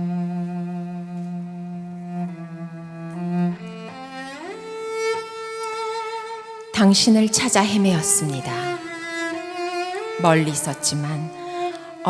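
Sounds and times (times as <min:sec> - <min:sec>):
cello playing held notes: 0:00.0 - 0:12.0.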